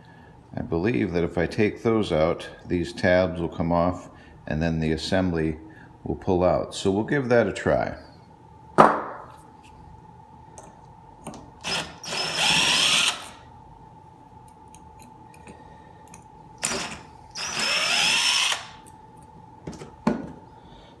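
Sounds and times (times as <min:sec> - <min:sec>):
power screwdriver motor whine: 0:11.6 - 0:13.4, 0:16.6 - 0:18.9.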